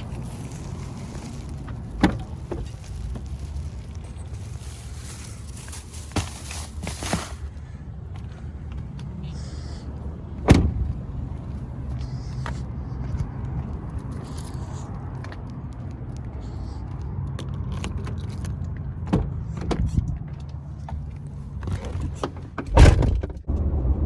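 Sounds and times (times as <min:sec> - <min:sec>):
pickup truck engine rumbling: 0:00.0 - 0:24.0
loud thump: 0:10.4 - 0:10.9.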